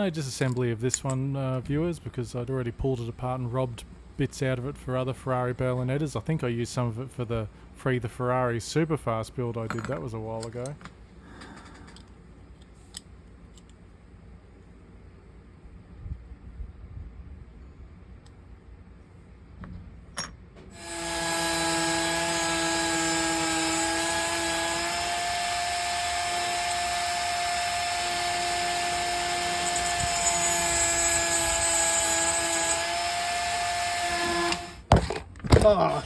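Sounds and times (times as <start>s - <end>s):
electric power tool running: 20.7s - 34.9s.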